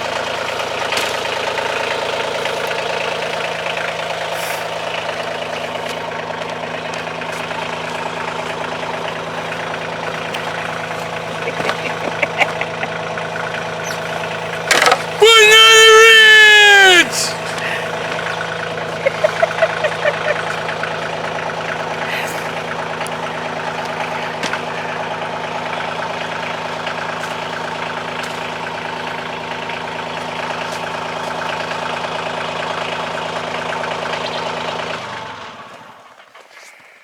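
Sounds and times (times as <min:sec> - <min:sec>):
tractor diesel engine idling: 0:00.0 - 0:37.0.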